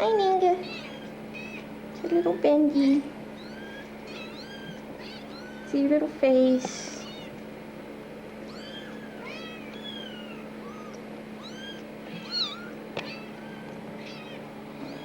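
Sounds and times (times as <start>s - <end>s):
steady low hum: 0.0s - 15.0s
kittens mewing: 0.6s - 2.4s, 3.3s - 5.9s, 6.7s - 7.4s, 8.4s - 15.0s.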